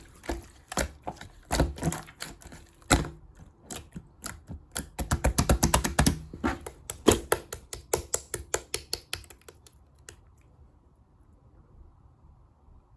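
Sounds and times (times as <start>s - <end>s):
slime popping and clicking: 2.9s - 10.2s.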